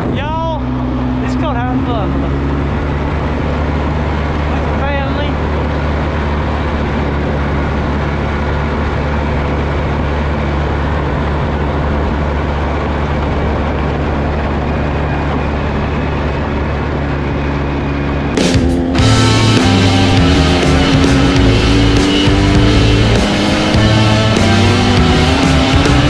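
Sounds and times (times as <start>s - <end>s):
vehicle engine humming: 0.0s - 26.0s
music: 18.4s - 26.0s.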